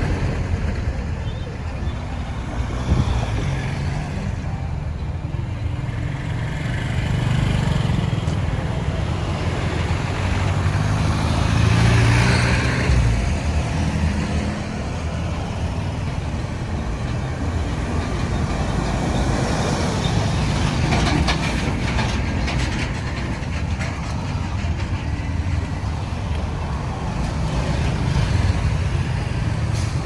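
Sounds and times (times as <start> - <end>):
road traffic: 0.0 - 30.0
vehicle passing close: 5.7 - 24.5.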